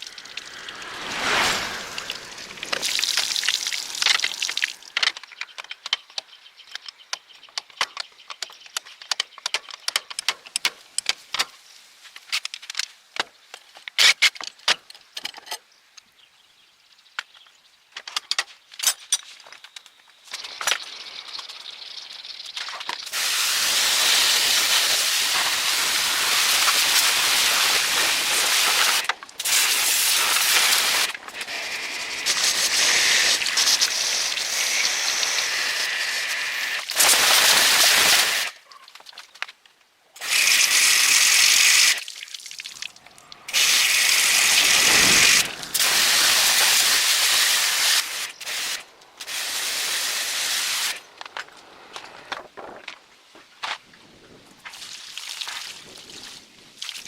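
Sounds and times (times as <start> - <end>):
pressurized nozzle spraying: 0.0 - 4.7, 23.1 - 38.5, 40.2 - 42.0, 43.5 - 51.0.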